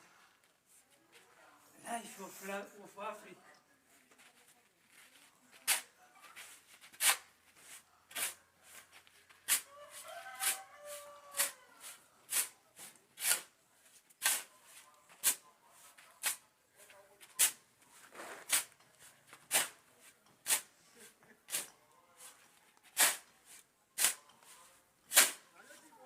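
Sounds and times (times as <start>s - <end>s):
hand tool scraping cement mix: 4.9s - 16.4s, 17.2s - 25.5s.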